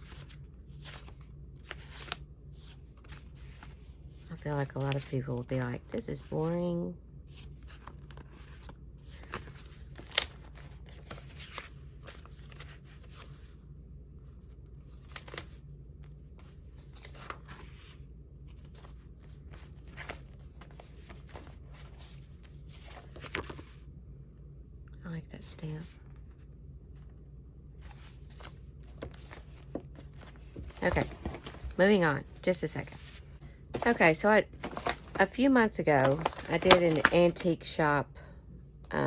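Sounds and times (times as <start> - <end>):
paper rustling: 0.0 - 3.8, 7.4 - 13.5, 16.4 - 23.8, 27.8 - 37.8.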